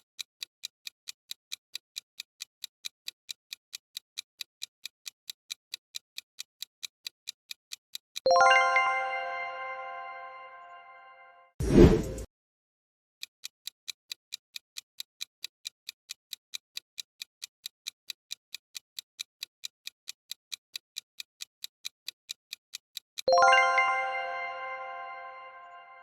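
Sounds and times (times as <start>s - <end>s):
clock-like ticking: 0.0s - 8.9s, 13.4s - 23.9s
chime ringing: 8.3s - 11.2s, 23.3s - 26.0s.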